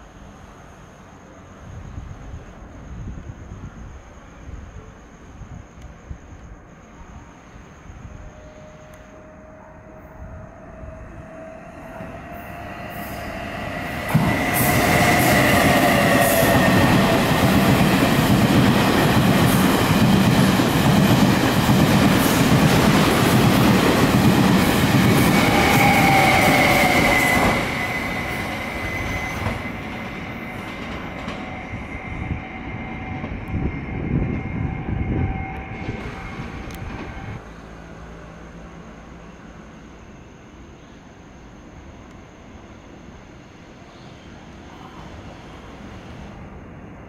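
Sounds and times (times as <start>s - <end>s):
passenger train passing: 0.0s - 47.0s
high wheel squealing: 24.6s - 37.4s.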